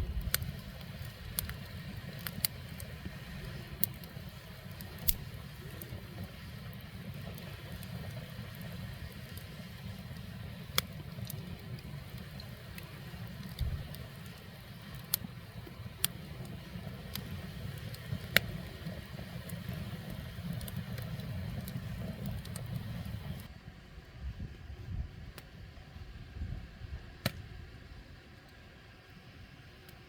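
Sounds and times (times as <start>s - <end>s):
firewood popping and crackling: 0.0s - 23.5s
wood fire low rumble: 0.0s - 30.0s.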